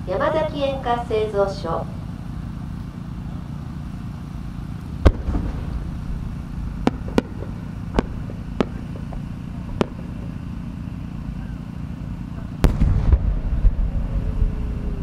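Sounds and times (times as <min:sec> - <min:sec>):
low rumble: 0:03.3 - 0:11.4, 0:12.4 - 0:15.0
firework pops: 0:05.0 - 0:05.9, 0:06.8 - 0:10.4
firework mortar bang: 0:05.0 - 0:10.5, 0:12.6 - 0:14.7.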